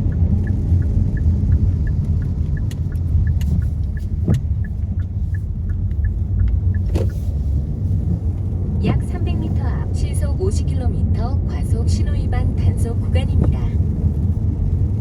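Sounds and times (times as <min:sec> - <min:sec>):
car driving on wet road: 0:00.0 - 0:15.0
faint even ticking: 0:00.1 - 0:08.2.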